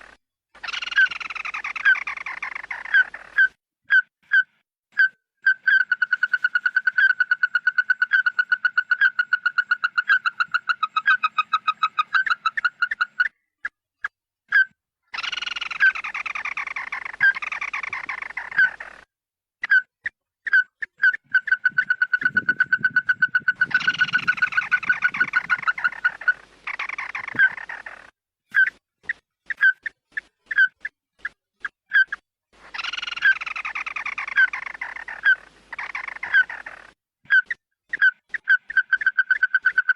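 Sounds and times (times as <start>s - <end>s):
harsh scratchy bird calls: 0.0s - 39.9s
bird piping notes: 14.5s - 18.9s, 20.5s - 30.9s, 32.7s - 39.9s.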